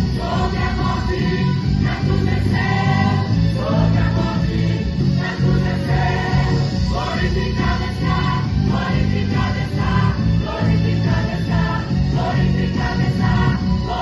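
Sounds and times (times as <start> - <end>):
choir singing gospel: 0.0 - 14.0.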